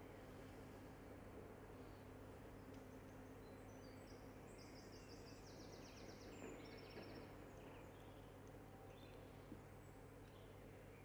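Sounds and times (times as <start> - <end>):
low steady background hiss: 0.0 - 11.0.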